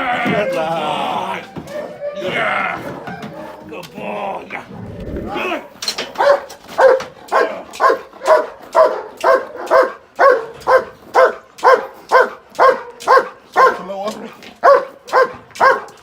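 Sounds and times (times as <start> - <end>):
dog barking: 6.1 - 16.0.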